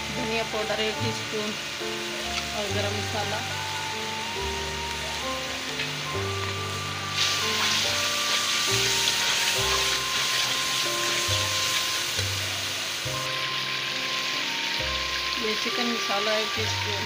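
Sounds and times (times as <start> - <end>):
background music: 0.0 - 17.0
food sizzling in oil: 0.0 - 17.0.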